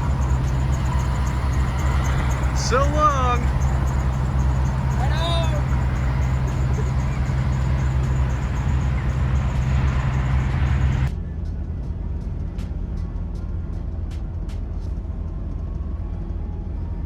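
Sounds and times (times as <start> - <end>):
car engine drone: 0.0 - 11.1
road rumble and hiss: 0.0 - 11.1
low rumble: 0.0 - 17.0.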